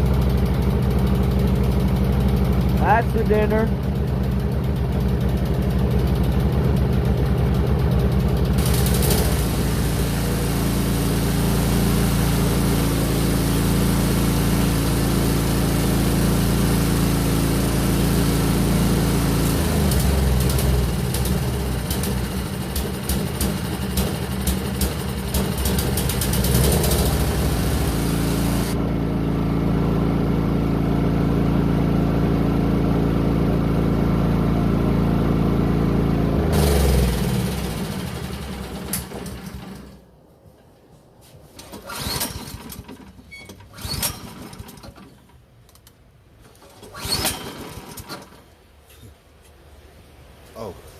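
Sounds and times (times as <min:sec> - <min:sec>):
small engine running: 0:00.0 - 0:40.0, 0:41.6 - 0:45.1, 0:46.6 - 0:48.5
engine shutting off: 0:00.0 - 0:40.1, 0:41.5 - 0:49.0
hiss: 0:08.6 - 0:12.7, 0:26.0 - 0:28.8.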